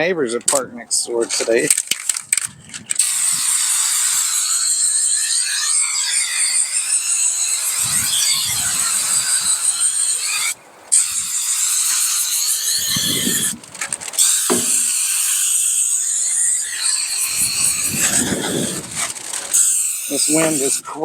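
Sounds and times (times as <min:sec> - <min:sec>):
wind rumble on microphone: 0:02.2 - 0:03.6, 0:07.7 - 0:09.8, 0:12.7 - 0:14.1, 0:17.2 - 0:19.2.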